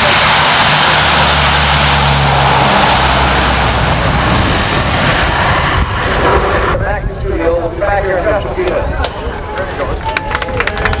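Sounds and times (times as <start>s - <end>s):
low drone: 0.0s - 6.8s
aircraft engines roaring: 0.0s - 11.0s.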